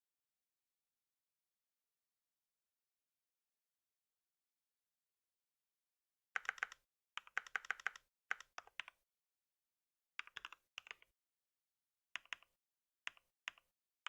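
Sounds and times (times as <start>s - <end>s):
computer keyboard typing: 6.4s - 9.0s, 10.2s - 11.1s, 12.2s - 12.5s, 13.1s - 13.7s.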